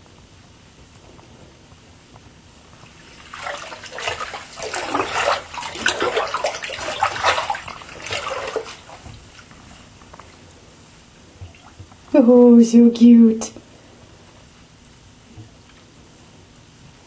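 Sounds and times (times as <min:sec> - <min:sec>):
water splashing in a bath: 0:02.7 - 0:10.6, 0:11.3 - 0:12.1.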